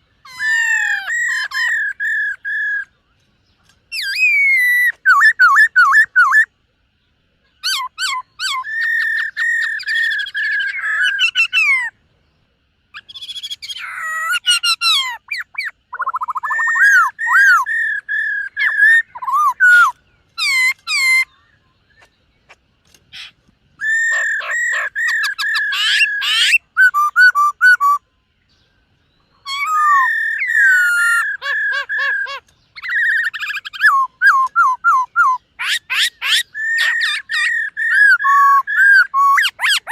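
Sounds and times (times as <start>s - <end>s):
bird singing whistled phrases: 0.2s - 3.0s, 3.9s - 6.5s, 7.6s - 12.0s, 12.9s - 22.1s, 23.2s - 28.0s, 29.1s - 39.9s.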